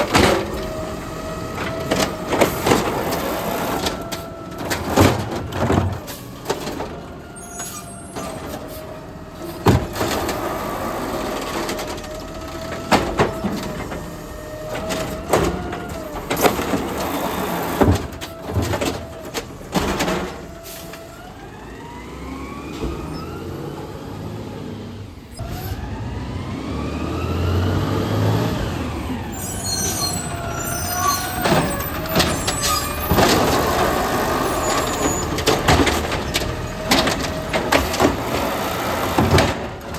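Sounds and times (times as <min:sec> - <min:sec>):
clanks and knocks: 0:00.0 - 0:08.8, 0:09.5 - 0:10.6, 0:11.2 - 0:21.0, 0:30.9 - 0:39.9
garbage truck whine: 0:00.0 - 0:39.9
engine revving: 0:21.4 - 0:29.4, 0:33.0 - 0:39.8
high squeaks: 0:29.3 - 0:35.6.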